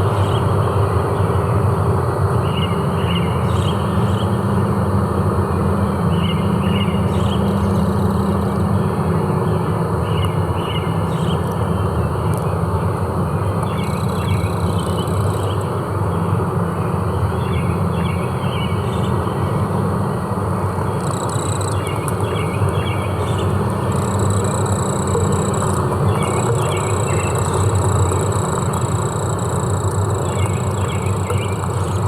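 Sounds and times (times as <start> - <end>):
low forest drone: 0.0 - 32.0
insects buzzing: 5.8 - 16.2, 20.1 - 32.0
high insect trill: 13.7 - 15.6, 20.9 - 32.0.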